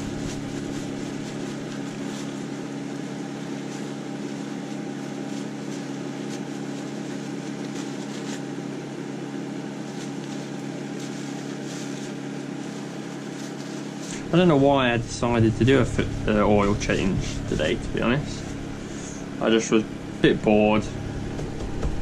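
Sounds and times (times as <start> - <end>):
faint scrapes and rustles: 0.0 - 8.7, 9.6 - 14.3
low machine hum: 0.0 - 22.0.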